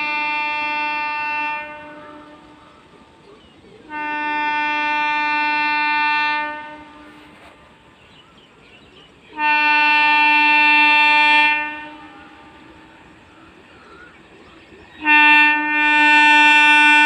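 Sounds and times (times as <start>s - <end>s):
train horn blasts: 0.0s - 3.0s, 3.9s - 8.0s, 9.3s - 13.6s, 15.0s - 17.0s.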